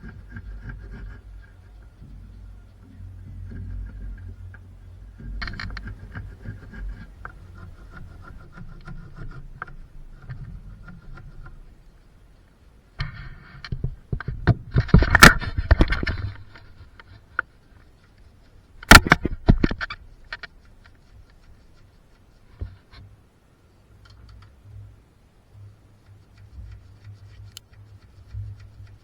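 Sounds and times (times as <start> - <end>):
knocks and scraping clatter: 0.0 - 11.8, 13.0 - 23.1.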